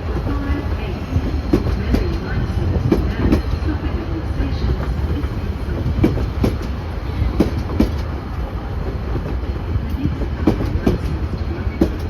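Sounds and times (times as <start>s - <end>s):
train rumbling by: 0.0s - 12.0s
wheels clicking over rail joints: 4.6s - 12.0s.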